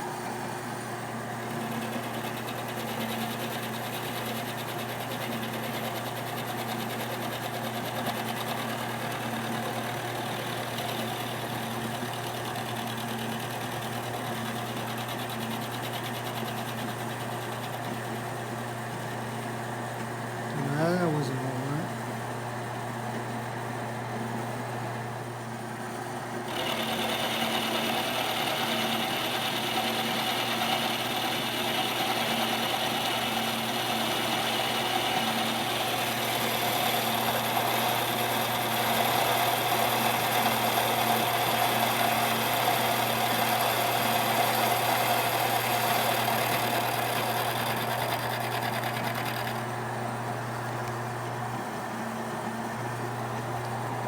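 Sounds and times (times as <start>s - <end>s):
milling machine motor hum: 0.0s - 19.6s, 26.5s - 54.0s
milling cutter cutting metal: 26.5s - 49.6s.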